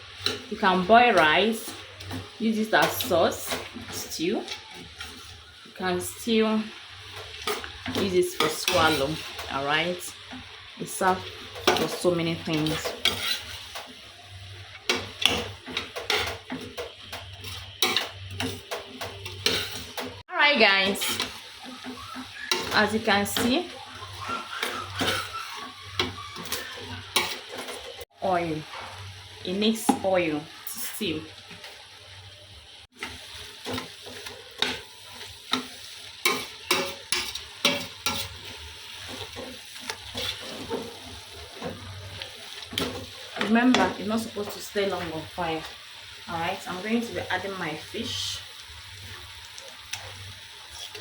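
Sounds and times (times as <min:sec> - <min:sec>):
steady sizzle: 0:00.0 - 0:51.0
spoon scraping a pot: 0:07.0 - 0:09.6, 0:11.4 - 0:13.9, 0:14.6 - 0:20.0, 0:20.9 - 0:28.0, 0:33.0 - 0:43.8
utensil stirring soup in pot: 0:12.5 - 0:20.1.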